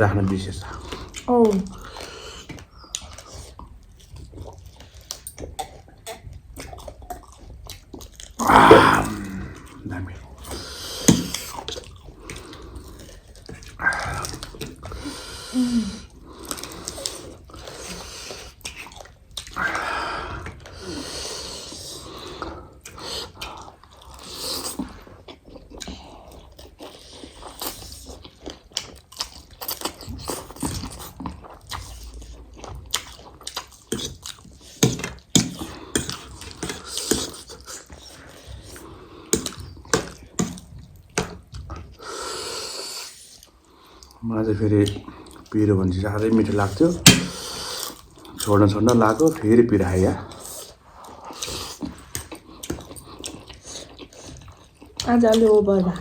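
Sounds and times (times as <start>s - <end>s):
chewing and biting food: 0.7s - 19.7s, 20.4s - 42.0s, 46.4s - 56.0s
breathy sounds: 8.4s - 11.4s, 13.8s - 17.1s, 19.6s - 22.5s.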